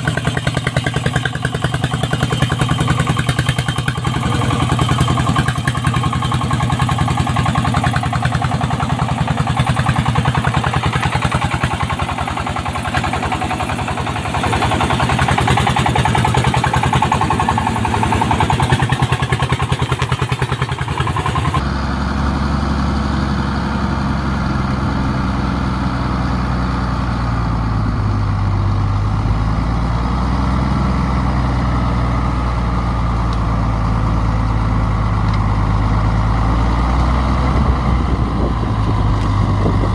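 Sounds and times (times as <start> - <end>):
deep steady engine running: 0.0 - 39.9
diesel engine chugging: 0.0 - 39.9.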